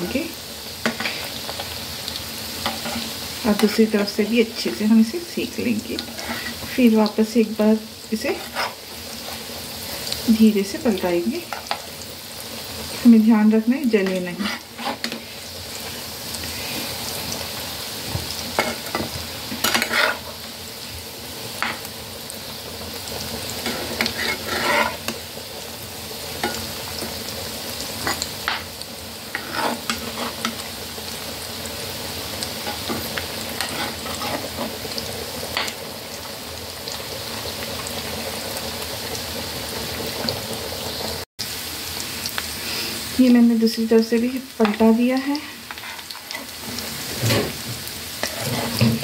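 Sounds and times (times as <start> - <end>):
patties sizzling in oil: 0.0 - 49.0
metal spatula scraping pan: 2.6 - 3.8, 6.0 - 6.8, 8.2 - 9.4, 14.0 - 15.5, 18.5 - 20.5, 23.6 - 25.2, 29.3 - 30.7, 32.6 - 34.9, 45.7 - 49.0.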